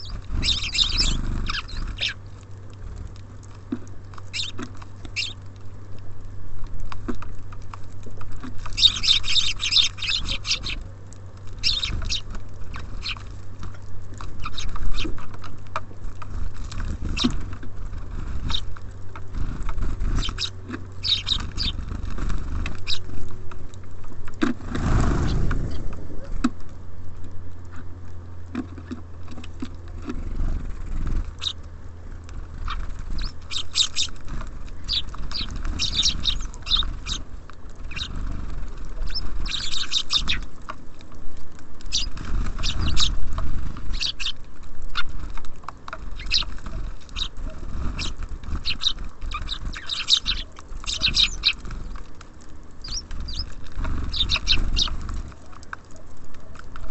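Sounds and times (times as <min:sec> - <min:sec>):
beaks tapping on feeder: 0:00.0 - 0:05.7, 0:06.8 - 0:23.6, 0:28.5 - 0:31.6, 0:32.3 - 0:40.8, 0:41.8 - 0:56.9
songbirds chirping: 0:00.0 - 0:56.9.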